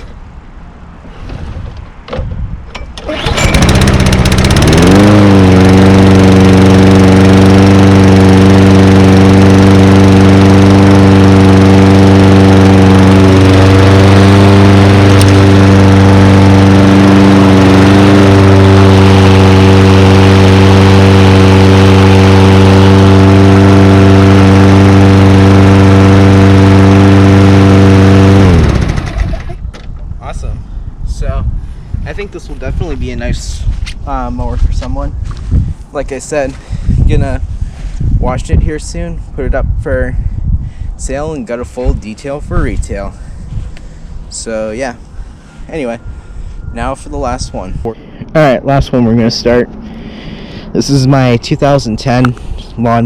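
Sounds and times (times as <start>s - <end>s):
lawn mower engine running: 2.9s - 29.6s.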